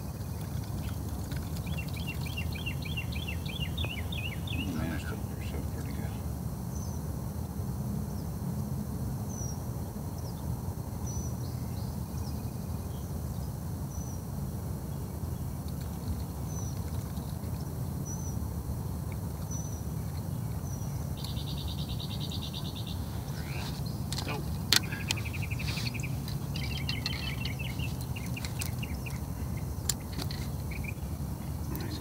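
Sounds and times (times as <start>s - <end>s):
bird chirping: 0.0s - 7.0s, 19.2s - 32.0s
buzzy bird trill: 19.4s - 32.0s.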